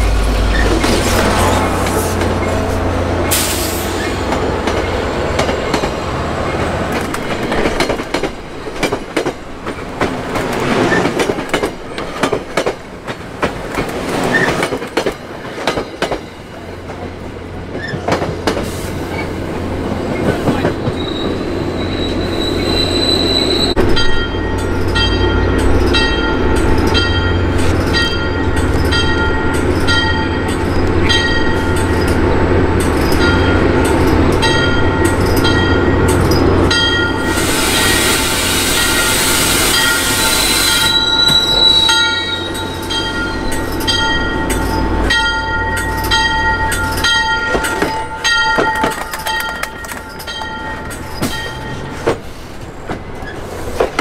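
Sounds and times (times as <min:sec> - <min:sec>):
diesel locomotive rumble: 0:00.0 - 0:15.7, 0:16.4 - 0:54.0
train wheels clicking on rails: 0:00.0 - 0:22.2, 0:23.7 - 0:54.0
high wheel squeal: 0:20.6 - 0:23.9, 0:37.3 - 0:44.9
bell ringing: 0:38.8 - 0:51.9.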